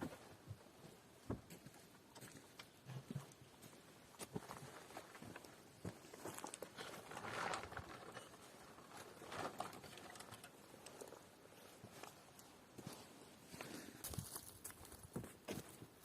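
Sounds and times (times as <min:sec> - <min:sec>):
footsteps on forest floor: 0:11.8 - 0:16.0.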